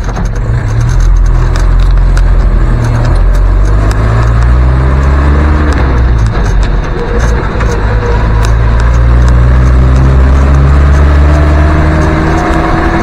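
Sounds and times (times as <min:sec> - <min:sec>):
body rattles and knocks: 0:00.0 - 0:13.0
vehicle engine revving: 0:00.0 - 0:13.0.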